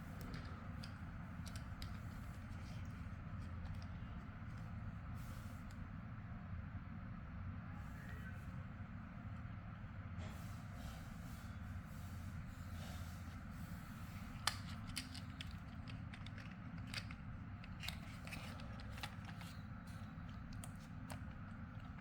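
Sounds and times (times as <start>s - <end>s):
steady low hum: 8.5s - 22.0s.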